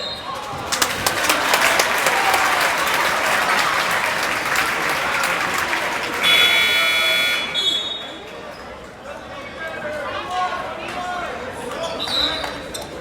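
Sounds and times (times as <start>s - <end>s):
crowd cheering and clapping: 0.3s - 8.4s
scoreboard buzzer: 6.2s - 7.8s.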